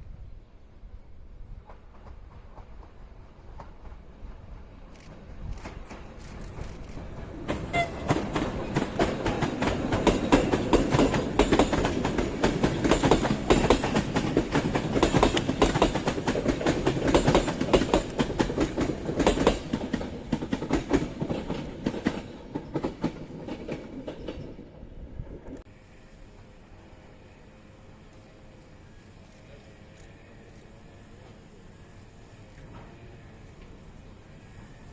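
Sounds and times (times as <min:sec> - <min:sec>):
train wheels clattering: 0:01.6 - 0:24.7.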